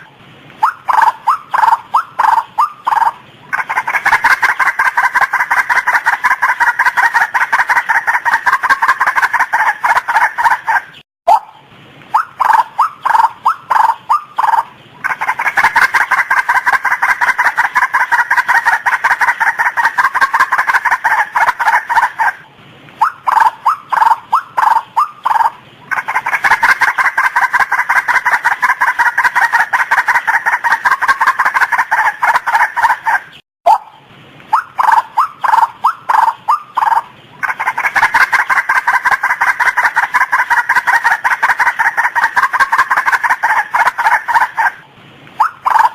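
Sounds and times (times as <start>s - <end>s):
waterhen calling: 0.0s - 45.9s.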